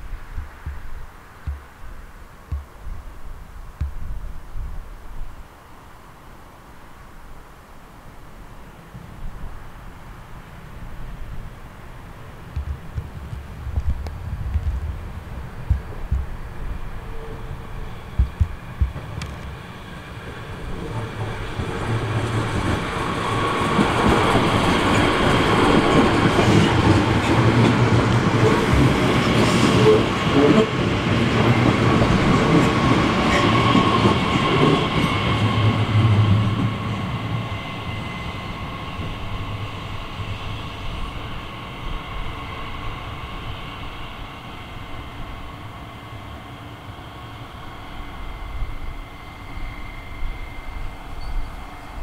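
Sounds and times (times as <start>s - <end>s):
train wheels on rails: 12.4s - 52.0s.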